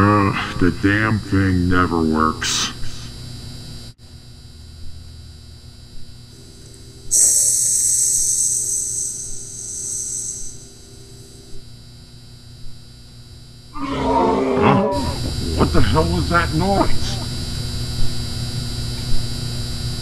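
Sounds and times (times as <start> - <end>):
low electrical hum: 0.0 - 20.0
loud drawn-out hiss: 6.4 - 11.5.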